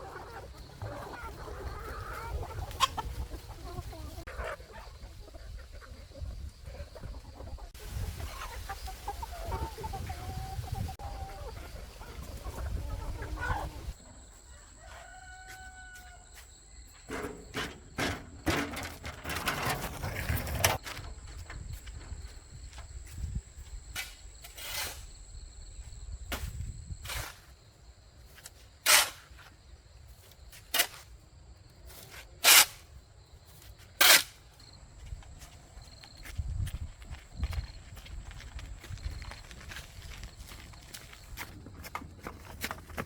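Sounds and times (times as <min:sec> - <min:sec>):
chickens clucking: 0:00.0 - 0:23.2
rooster crowing: 0:14.4 - 0:16.4.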